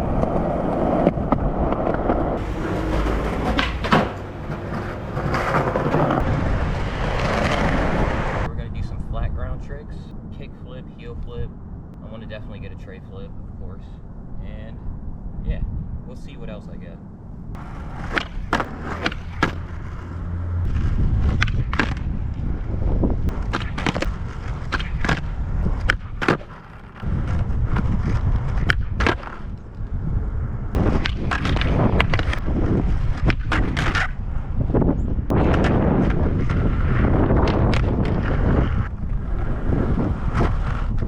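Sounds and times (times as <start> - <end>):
skateboard wheels rumbling: 0.0 - 8.5, 17.5 - 41.0
wind: 0.0 - 41.0
skateboard tail pops and clacks: 0.1 - 6.2, 7.0 - 8.5, 17.6 - 19.7, 20.8 - 22.1, 23.3 - 29.6, 30.8 - 34.2, 35.3 - 38.8.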